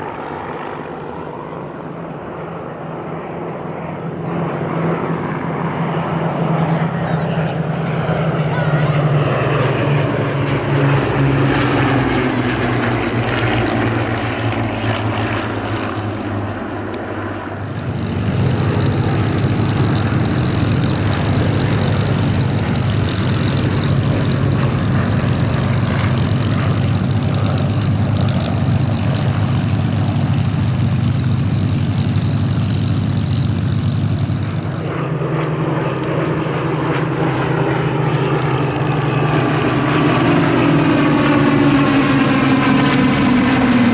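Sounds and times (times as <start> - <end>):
propeller aircraft engine drone: 0.0 - 43.9
loud hissing rush: 17.5 - 35.0.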